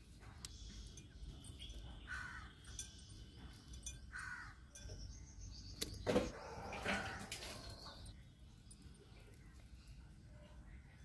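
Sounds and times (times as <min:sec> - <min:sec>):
bird calling: 0:00.3 - 0:08.2.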